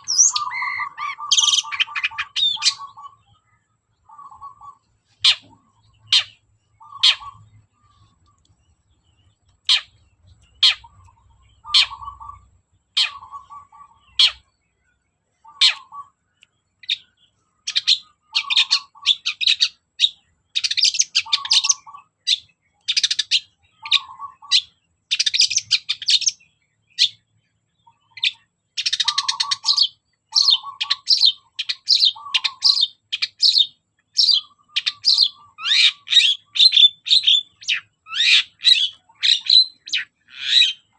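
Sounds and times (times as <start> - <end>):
shrike singing: 0.0 - 14.5.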